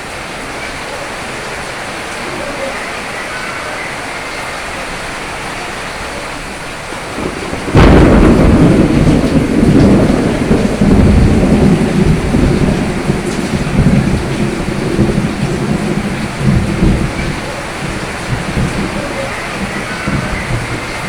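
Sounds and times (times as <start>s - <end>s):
steady rain falling: 0.0s - 21.0s
thunderclap rumbling: 6.1s - 21.0s.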